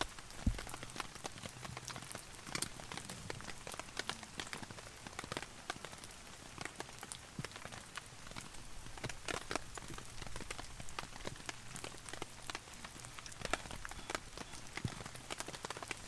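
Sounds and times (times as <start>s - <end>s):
hiss of rainfall: 0.0s - 16.0s
rain drumming on a tarp: 0.0s - 16.0s.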